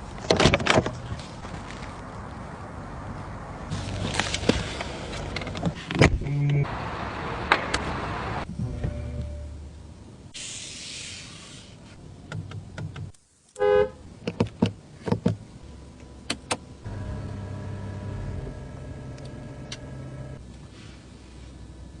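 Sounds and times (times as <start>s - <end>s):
electric window motor running: 16.9s - 20.4s.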